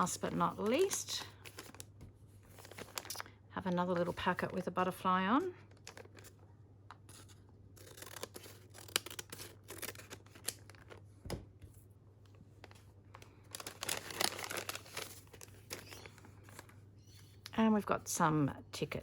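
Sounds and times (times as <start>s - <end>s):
packaging crinkling and clicking: 12.6s - 16.7s.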